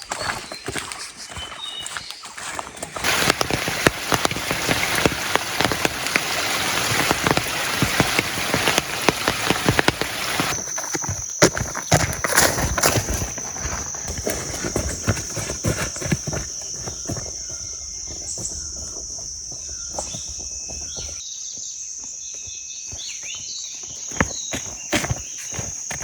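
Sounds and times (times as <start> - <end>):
bird chirps: 0.0 - 25.8
footsteps on forest floor: 0.0 - 26.0
insects droning: 0.0 - 26.0.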